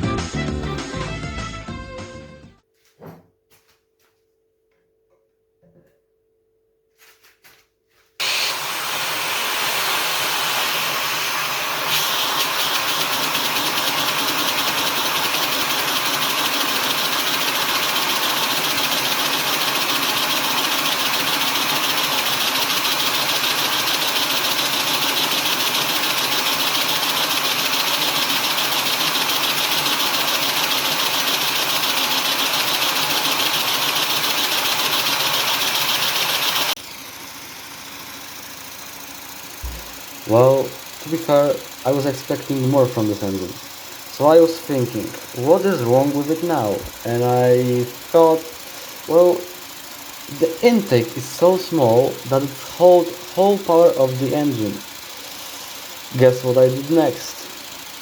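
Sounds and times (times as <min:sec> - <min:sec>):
vacuum cleaner running: 0:08.2 - 0:58.0
model engine clattering rapidly: 0:11.8 - 0:36.8, 0:38.0 - 0:58.0.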